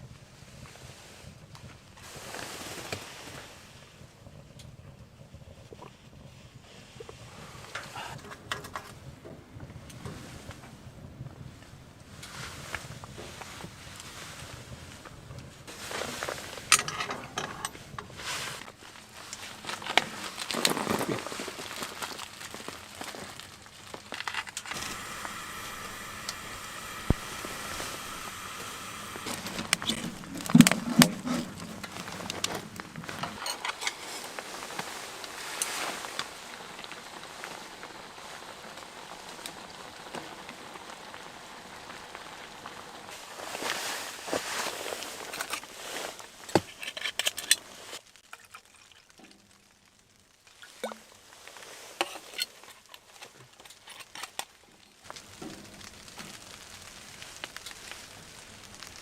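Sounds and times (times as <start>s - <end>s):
crinkling and rustling: 4.9s - 59.0s
steady hiss: 15.6s - 46.6s, 54.9s - 59.0s
snow pattering: 18.1s - 46.4s, 55.0s - 59.0s.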